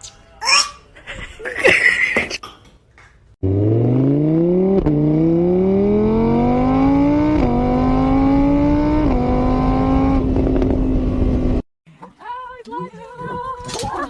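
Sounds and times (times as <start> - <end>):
engine accelerating through gears: 3.4 - 11.6.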